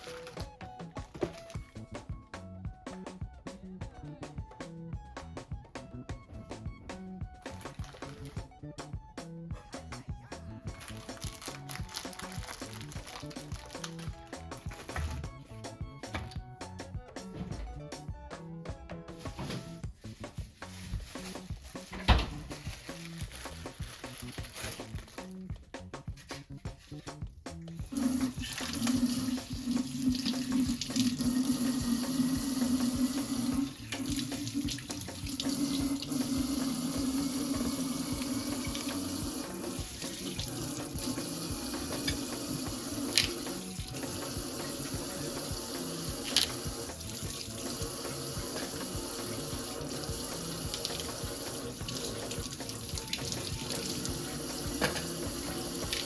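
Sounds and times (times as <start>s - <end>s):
tap water running into sink: 27.9s - 56.0s.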